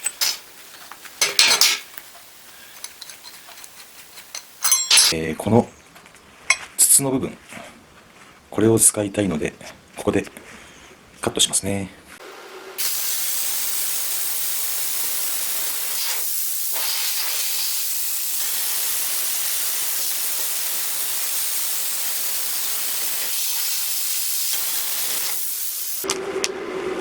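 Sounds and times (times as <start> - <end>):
plasma cutter hissing: 12.8 - 26.1.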